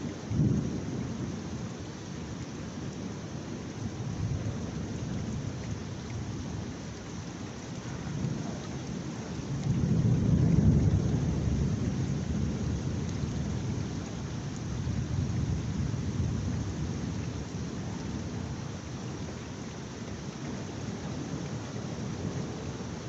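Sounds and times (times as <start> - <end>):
heavy rain: 0.0 - 23.0
low thunder roll: 9.6 - 13.9.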